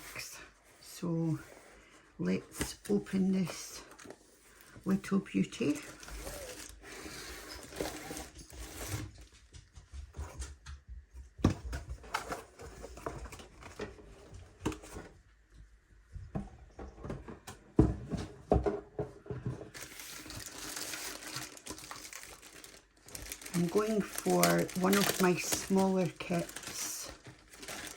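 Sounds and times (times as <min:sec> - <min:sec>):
cardboard box handled: 0:19.7 - 0:27.9.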